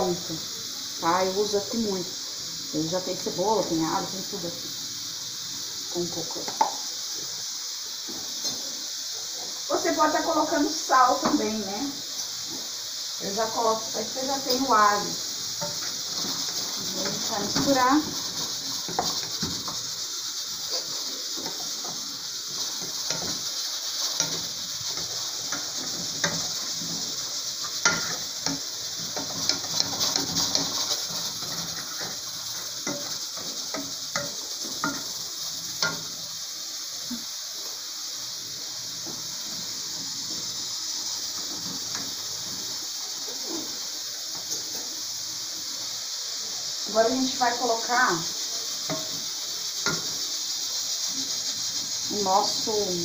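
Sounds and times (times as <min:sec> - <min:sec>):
vegetables sizzling in a pan: 0:00.0 - 0:53.0
wooden spoon scraping a pan: 0:14.1 - 0:36.2.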